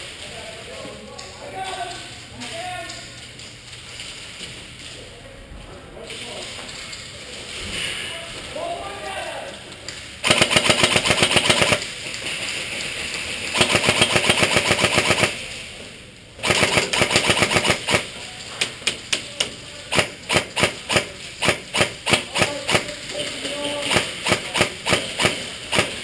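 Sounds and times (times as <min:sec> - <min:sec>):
airsoft guns firing: 0:10.2 - 0:11.9, 0:13.5 - 0:15.5, 0:16.4 - 0:18.2, 0:19.9 - 0:26.0.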